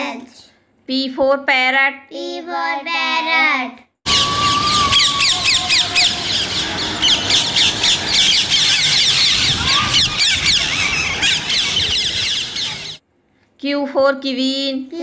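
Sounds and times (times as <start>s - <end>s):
parakeets calling: 4.1s - 13.0s.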